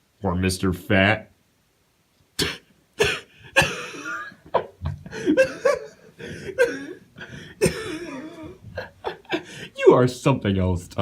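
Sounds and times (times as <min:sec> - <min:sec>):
person laughing: 0:03.5 - 0:09.7.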